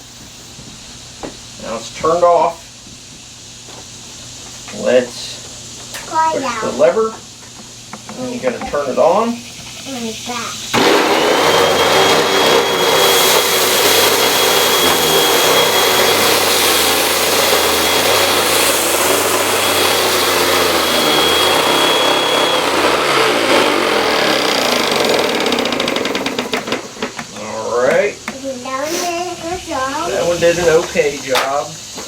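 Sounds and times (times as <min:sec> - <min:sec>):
vacuum cleaner suction rush: 0:07.9 - 0:32.0
thin high whine: 0:08.0 - 0:32.0.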